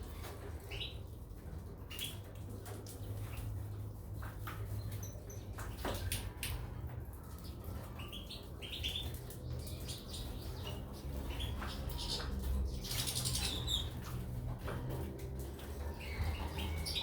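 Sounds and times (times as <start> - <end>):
birds fluttering: 0.0 - 17.0
birds chirping: 7.1 - 17.0.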